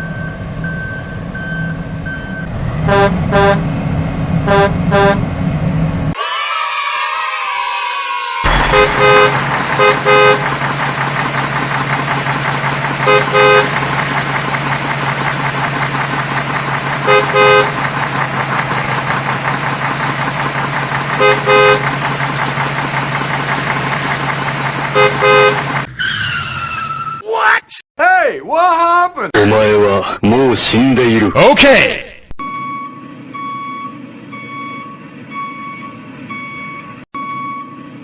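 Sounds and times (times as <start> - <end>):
engine and road noise: 0.0 - 6.2, 8.5 - 27.2, 32.3 - 38.0
vehicle horn beeping: 2.9 - 3.6, 4.5 - 5.2, 8.5 - 10.6, 13.0 - 13.9, 17.0 - 17.8, 21.2 - 22.0, 24.9 - 25.9.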